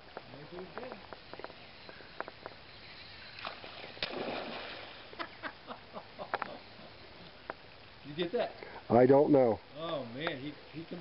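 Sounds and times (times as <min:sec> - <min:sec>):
fish splashing: 0:03.4 - 0:05.1.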